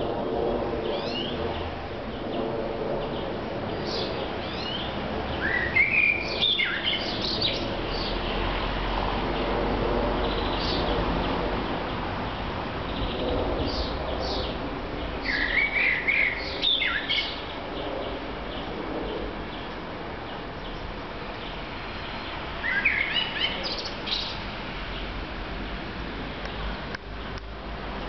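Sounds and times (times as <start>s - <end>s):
songbird warbling: 15.2s - 17.4s.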